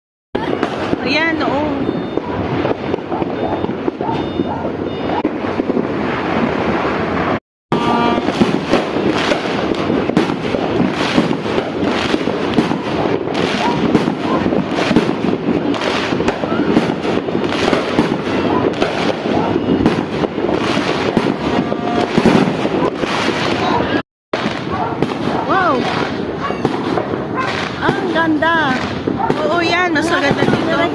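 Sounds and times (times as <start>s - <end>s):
fireworks and firecrackers banging: 0.4s - 30.9s.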